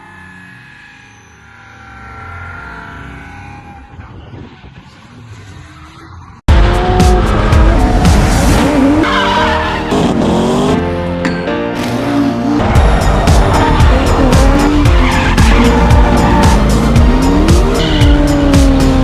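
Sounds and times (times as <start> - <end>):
tyres squealing and skidding: 0.0 - 6.4, 7.2 - 10.8, 12.6 - 19.0
car engine revving hard: 9.8 - 10.8, 12.5 - 19.0.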